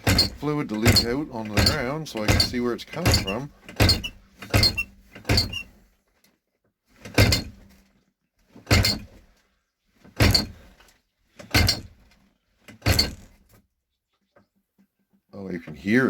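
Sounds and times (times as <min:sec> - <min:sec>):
brake pedal clunks: 0:00.0 - 0:05.7, 0:07.0 - 0:07.7, 0:08.6 - 0:09.3, 0:10.1 - 0:10.8, 0:11.4 - 0:12.1, 0:12.7 - 0:13.4.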